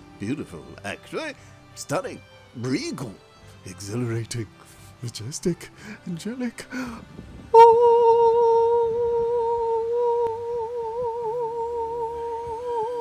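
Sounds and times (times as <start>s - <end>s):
person humming a long note: 7.5s - 13.0s.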